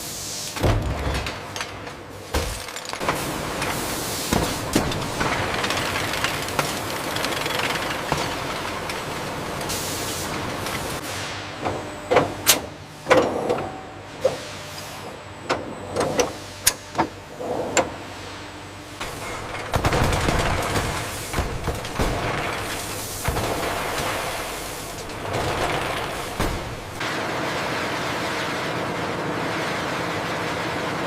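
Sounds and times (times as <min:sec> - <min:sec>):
factory machinery hissing: 0:00.0 - 0:00.7, 0:03.1 - 0:12.0, 0:17.3 - 0:27.4
sharp clicks and clanks: 0:04.3 - 0:09.7.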